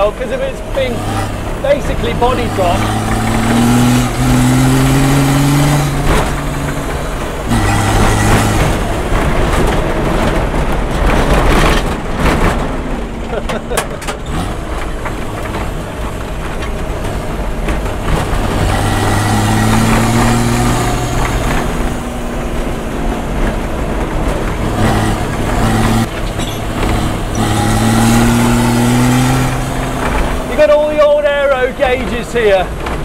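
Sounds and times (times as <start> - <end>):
diesel engine revving: 0.0 - 33.0.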